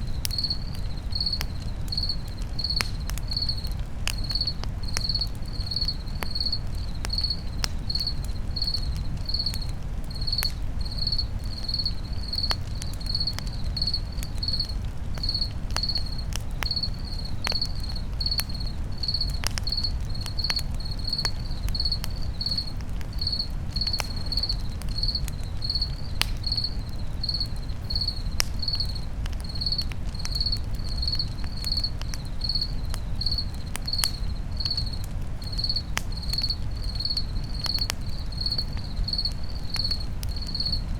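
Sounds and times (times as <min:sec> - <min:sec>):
campfire crackling and popping: 0:00.0 - 0:40.9
crickets chirping: 0:00.0 - 0:40.9.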